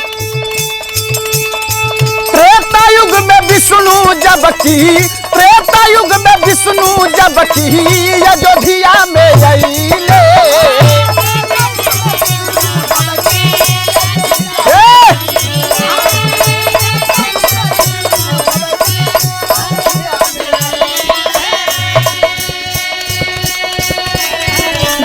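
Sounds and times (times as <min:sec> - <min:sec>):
hand-drum beat: 0:00.0 - 0:25.0
rattling percussion: 0:00.0 - 0:25.0
person singing a cry: 0:14.6 - 0:16.0.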